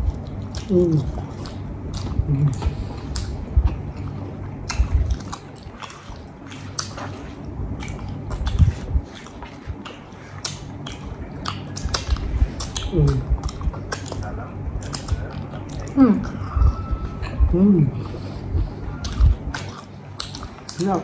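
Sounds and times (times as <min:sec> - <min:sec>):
wet mouth clicks and smacks: 0:00.0 - 0:03.4, 0:04.7 - 0:16.0, 0:19.0 - 0:20.9
biting and chewing: 0:00.0 - 0:21.0.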